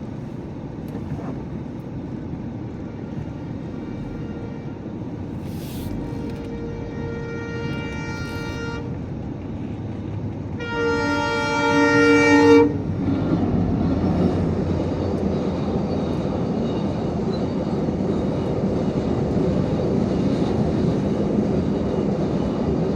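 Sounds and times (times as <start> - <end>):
low train rumble: 0.0 - 22.9
train horn blasts: 2.9 - 9.2, 10.6 - 13.0.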